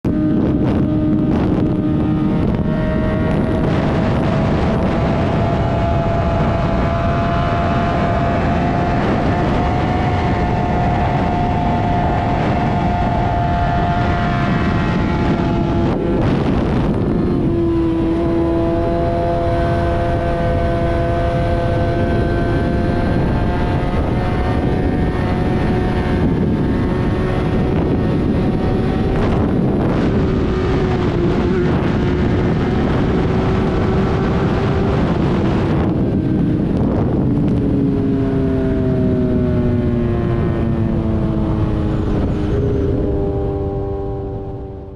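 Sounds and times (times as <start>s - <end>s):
motorcycle engine at speed: 0.0s - 44.9s
rush of noise: 0.0s - 44.9s.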